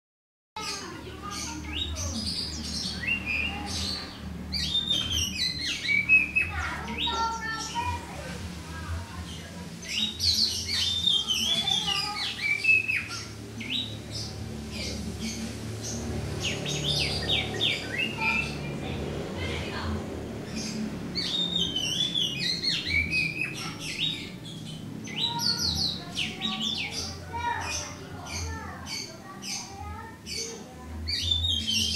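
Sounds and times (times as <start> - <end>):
steady low hum: 0.8 - 31.0
bird singing whistled notes: 1.4 - 7.8, 9.8 - 14.3, 21.2 - 27.1, 31.1 - 31.9.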